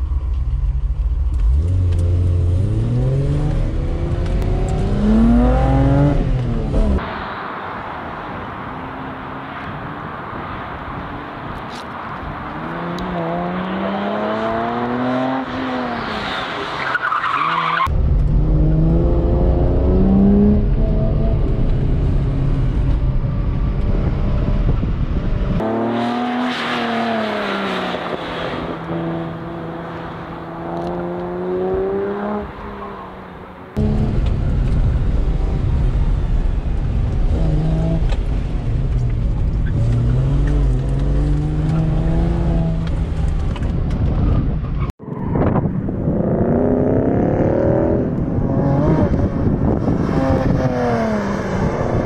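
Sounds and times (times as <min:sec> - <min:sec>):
car engine revving hard: 0:01.6 - 0:07.0.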